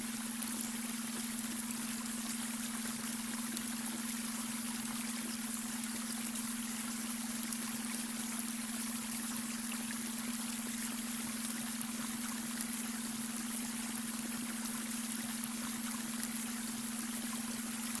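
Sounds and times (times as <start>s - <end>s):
brook water splashing over stones: 0.0s - 18.0s.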